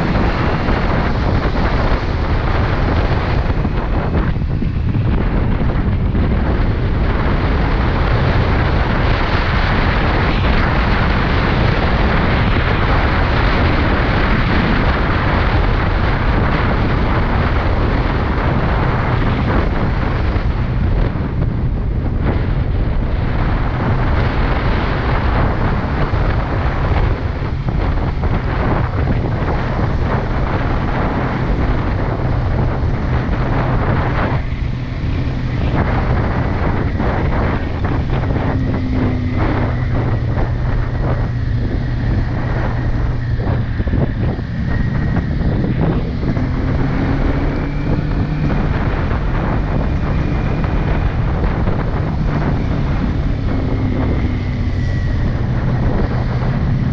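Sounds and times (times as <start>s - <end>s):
motorcycle engine running: 0.0s - 56.9s
wind blast on microphone: 0.0s - 56.9s.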